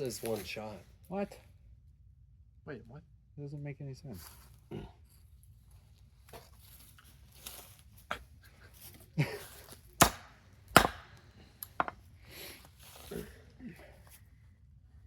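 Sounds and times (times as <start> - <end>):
hammer striking nail into wood: 10.0 - 11.2.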